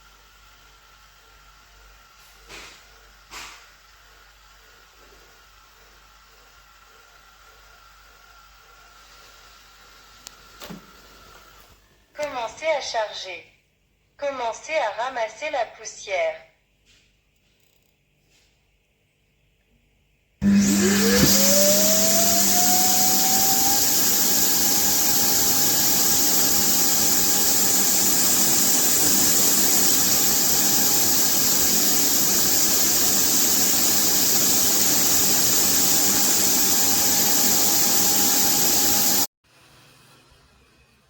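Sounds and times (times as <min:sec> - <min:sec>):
suction motor whining and hissing: 0:20.4 - 0:39.3.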